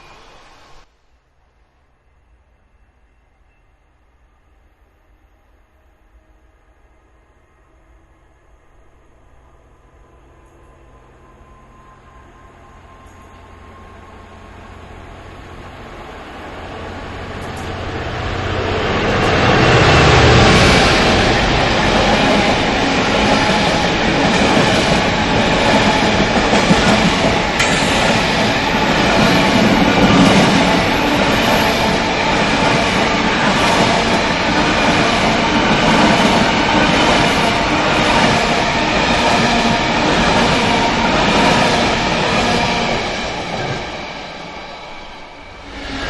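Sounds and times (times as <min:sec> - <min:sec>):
train wheels clattering on rails: 0:17.1 - 0:44.0.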